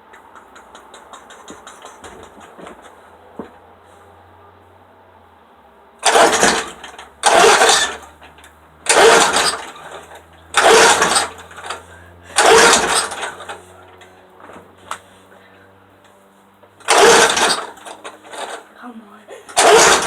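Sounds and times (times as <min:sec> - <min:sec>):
lawnmower engine turning over: 0:00.1 - 0:03.6, 0:06.0 - 0:15.2, 0:16.7 - 0:20.0
recoil cord tugging: 0:06.0 - 0:15.0, 0:16.8 - 0:18.7, 0:19.4 - 0:20.0.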